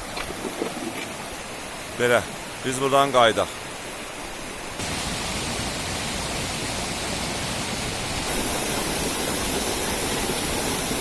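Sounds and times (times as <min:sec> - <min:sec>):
falling water rushing: 0:00.0 - 0:11.0.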